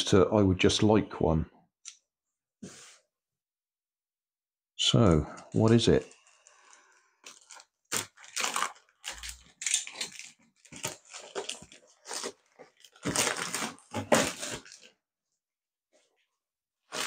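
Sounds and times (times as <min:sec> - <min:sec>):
packaging crinkling and tearing: 0:05.6 - 0:15.0.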